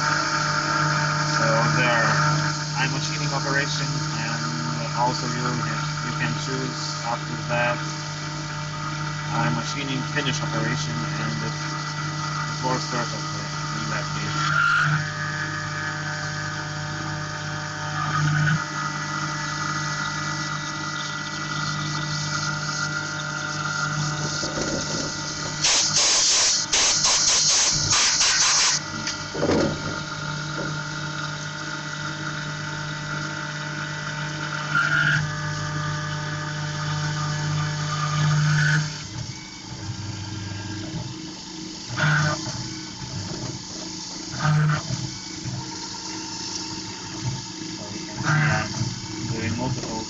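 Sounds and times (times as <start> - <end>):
mill spindle cutting tone: 0.0 - 50.0
watery coolant hiss: 22.2 - 31.1, 38.8 - 50.0
hissing coolant spray: 24.0 - 28.8.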